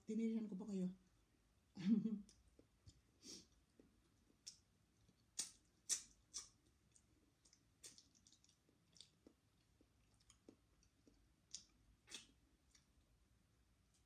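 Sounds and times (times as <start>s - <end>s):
wet chewing mouth sounds: 3.5s - 12.8s.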